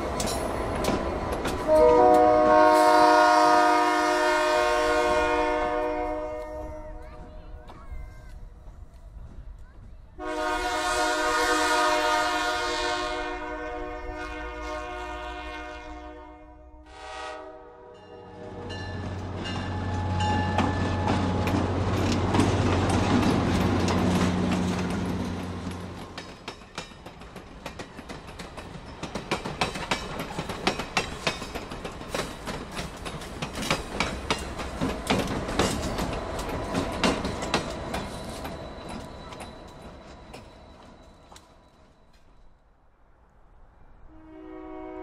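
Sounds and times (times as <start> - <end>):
wheels clacking over rail joints: 0.0 - 2.7, 18.6 - 42.5
diesel locomotive engine drone: 0.0 - 7.3, 8.3 - 42.4.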